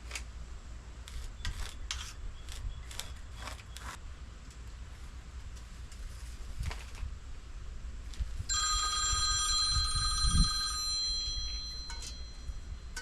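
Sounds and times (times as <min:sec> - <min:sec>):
phone ringtone: 0:08.5 - 0:13.0.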